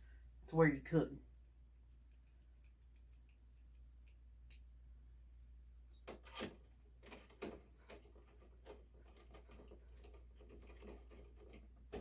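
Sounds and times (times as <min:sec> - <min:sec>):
rubbing and scraping: 0:06.2 - 0:12.0.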